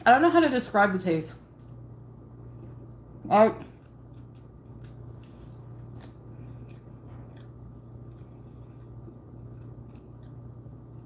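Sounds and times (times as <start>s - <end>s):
steady low hum: 0.0s - 11.0s
soft mouth clicks while chewing: 3.7s - 11.0s.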